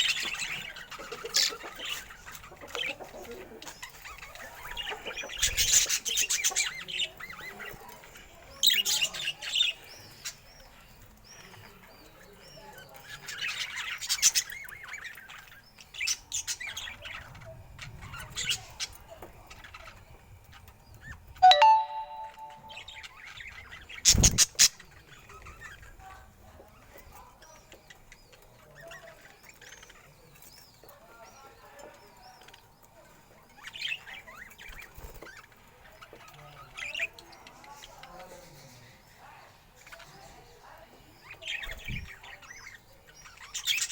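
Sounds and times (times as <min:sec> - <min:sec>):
short pitched bird call: 0:21.4 - 0:23.0.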